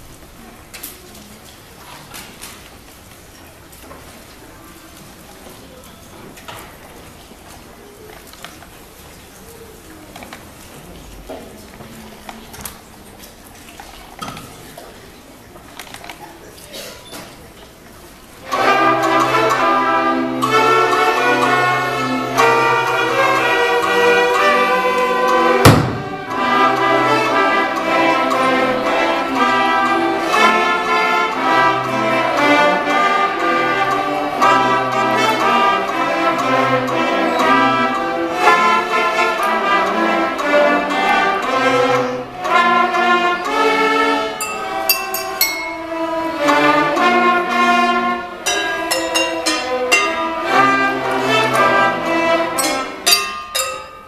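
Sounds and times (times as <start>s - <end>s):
orchestra playing lively music: 18.4s - 54.0s
sharp percussion hit: 25.6s - 26.4s, 44.4s - 46.2s.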